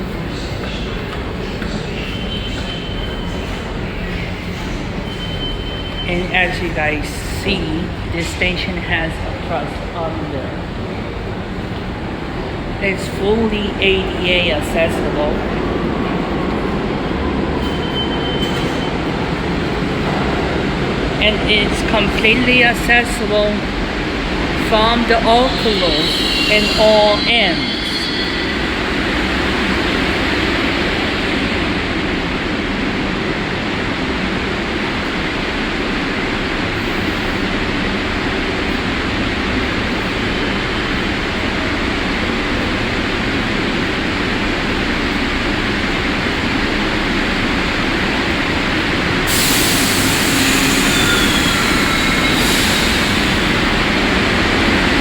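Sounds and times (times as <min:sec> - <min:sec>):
subway train rumbling on track: 0:00.0 - 0:55.0
high hiss: 0:49.2 - 0:55.0.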